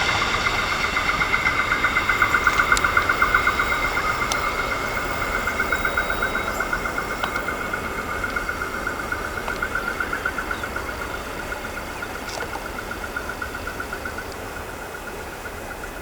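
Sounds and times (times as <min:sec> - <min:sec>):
rapid pulsing ring: 0:00.0 - 0:12.1
freight train rumbling: 0:00.0 - 0:16.0
steady high whine: 0:00.0 - 0:16.0.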